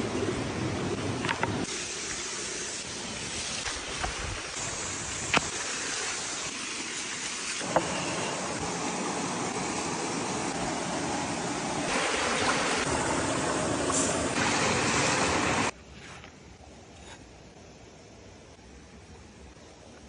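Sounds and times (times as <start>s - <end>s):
coals crackling and popping: 1.6s - 7.8s
meat sizzling over charcoal: 1.6s - 8.8s.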